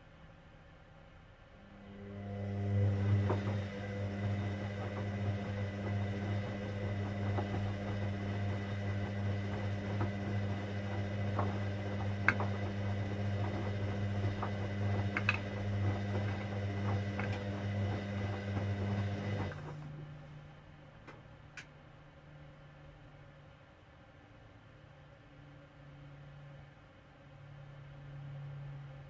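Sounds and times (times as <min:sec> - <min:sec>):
washing machine humming: 0:01.6 - 0:20.6.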